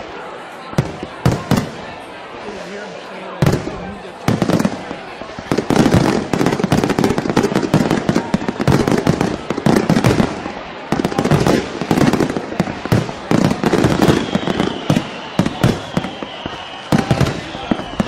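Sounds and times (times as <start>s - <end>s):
fireworks bangs and crackling: 0.0s - 18.0s
firework whistle: 11.9s - 18.0s.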